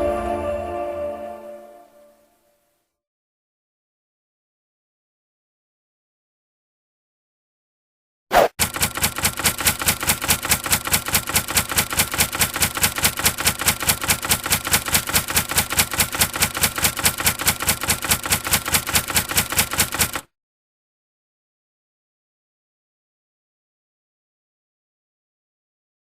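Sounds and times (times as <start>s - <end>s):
rapid sharp clicks: 8.4s - 20.3s.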